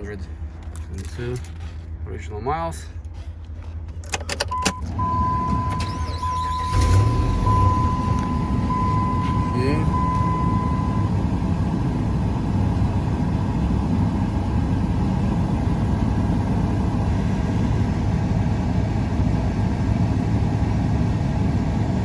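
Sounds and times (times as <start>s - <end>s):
engine idling: 0.0s - 22.0s
high electronic tone: 4.7s - 11.1s.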